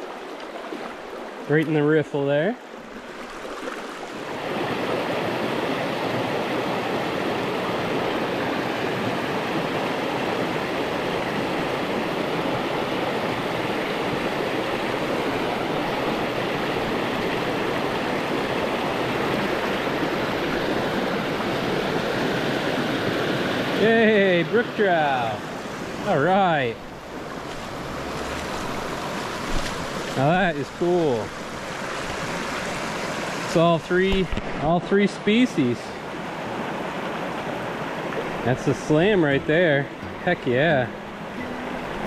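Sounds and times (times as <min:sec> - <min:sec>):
water running over stones: 0:26.0 - 0:34.7.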